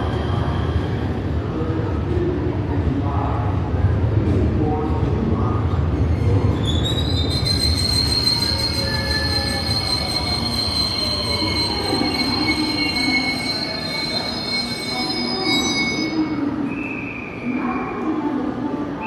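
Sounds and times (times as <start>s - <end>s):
train wheels squealing on rail: 0.0s - 1.2s, 6.0s - 18.1s.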